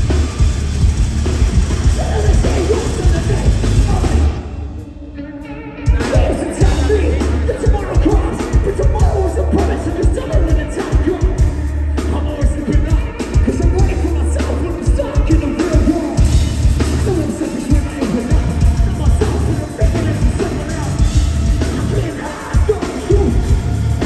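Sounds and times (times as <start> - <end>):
heavy low bass surges: 0.0 - 5.3, 6.6 - 7.8, 16.2 - 24.0
live metal band playing: 0.0 - 24.0
vocals: 0.0 - 24.0.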